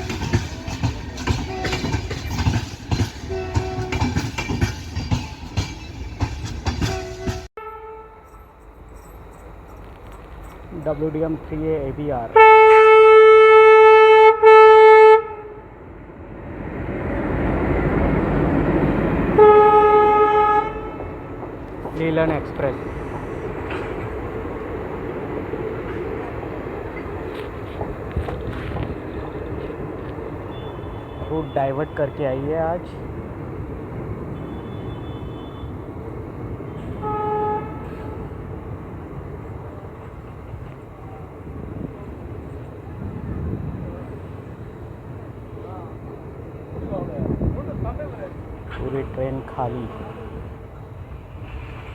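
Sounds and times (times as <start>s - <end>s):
rumble of train rolling: 0.0s - 14.6s, 15.2s - 51.9s
locomotive horn blast: 1.3s - 2.2s, 3.2s - 4.2s, 6.8s - 8.6s, 12.3s - 15.7s, 19.3s - 21.4s, 30.4s - 32.5s, 34.3s - 35.8s, 36.6s - 38.4s.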